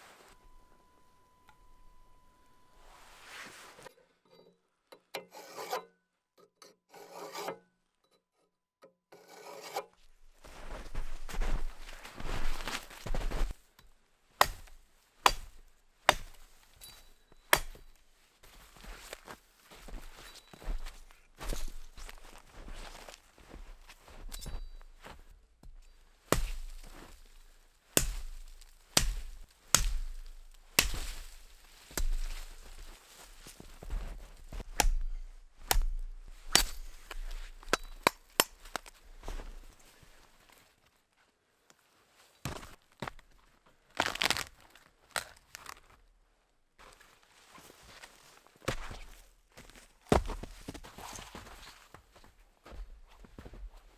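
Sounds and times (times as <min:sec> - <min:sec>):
saw rasping through log: 0:05.3 - 0:05.9, 0:06.9 - 0:07.6, 0:09.2 - 0:09.8, 0:14.4 - 0:16.4, 0:17.5 - 0:17.9, 0:28.0 - 0:31.4
axe chopping wood: 0:14.4 - 0:18.0, 0:25.6 - 0:32.9, 0:34.5 - 0:39.5.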